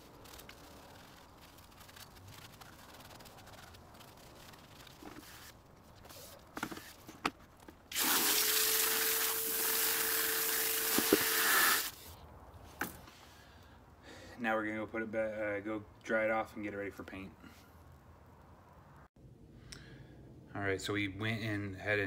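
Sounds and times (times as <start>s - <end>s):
scrubbing brake caliper: 0.0s - 7.7s
loud hissing spray: 7.9s - 12.0s.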